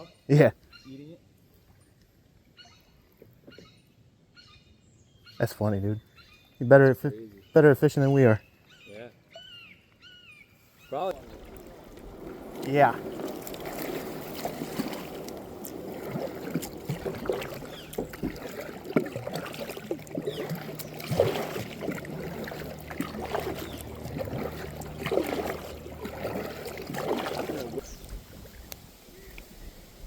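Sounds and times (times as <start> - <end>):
kayak paddle splashing: 10.5 - 30.0
steady low hum: 12.0 - 28.0.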